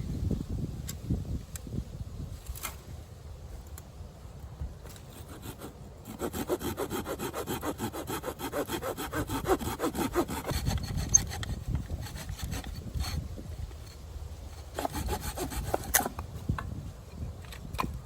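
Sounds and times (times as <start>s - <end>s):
hand saw cutting wood: 5.2s - 13.3s, 14.6s - 16.2s.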